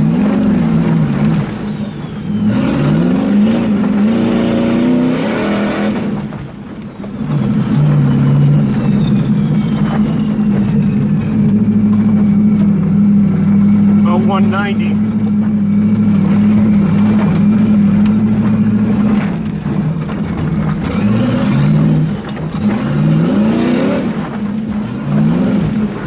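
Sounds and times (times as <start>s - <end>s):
engine revving under full throttle: 0.0s - 6.5s, 7.1s - 26.0s
faint high turbo whistle: 7.1s - 12.7s.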